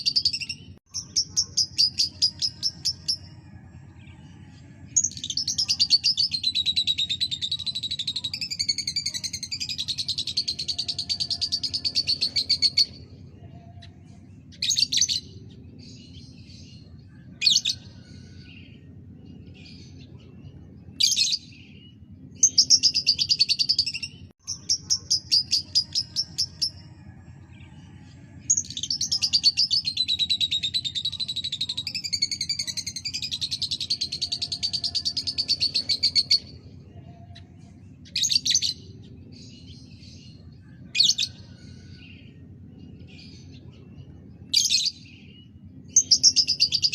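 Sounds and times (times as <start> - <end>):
lovebird chirping and trilling: 0.0 - 3.3.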